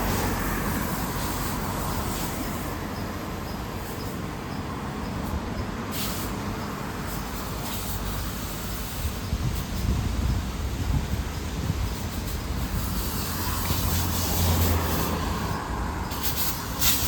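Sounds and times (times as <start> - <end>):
vehicles passing: 0.0 - 17.0
brief hiss: 5.9 - 6.4, 16.1 - 17.0.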